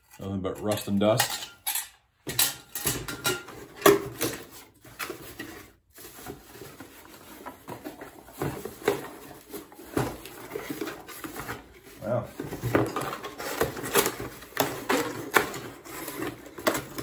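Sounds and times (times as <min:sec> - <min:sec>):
packaging rustling: 0:03.6 - 0:17.0.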